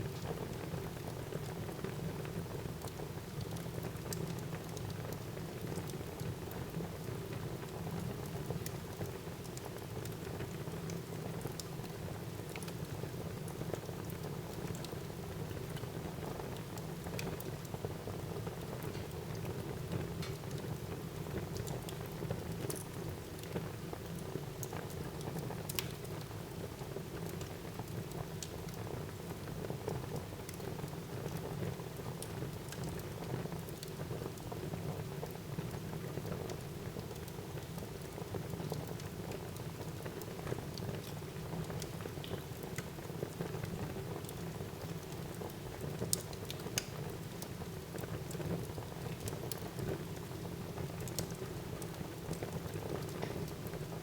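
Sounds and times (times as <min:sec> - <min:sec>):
fire crackles and pops: 0:00.0 - 0:54.0.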